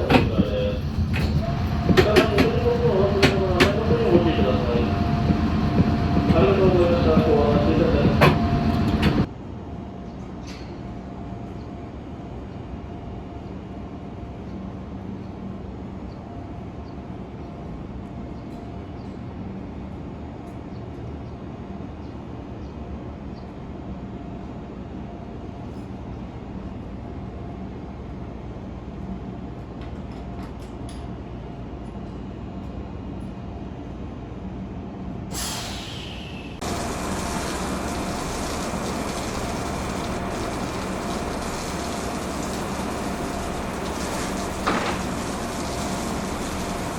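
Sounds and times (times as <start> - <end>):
electric train equipment humming: 0.0 - 9.3, 35.4 - 46.9
air hissing: 35.3 - 42.8.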